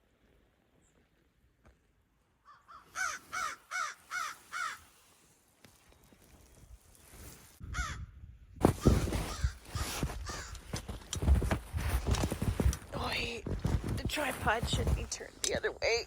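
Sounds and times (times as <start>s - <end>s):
crow cawing: 2.4s - 4.9s, 7.7s - 8.0s, 9.3s - 10.6s.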